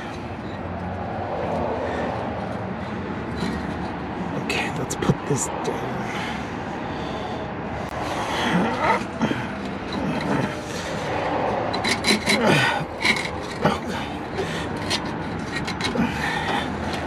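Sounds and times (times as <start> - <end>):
metal squeaks: 3.2 - 4.0, 9.8 - 16.1
metal parts scraping: 3.3 - 4.0, 8.4 - 17.0.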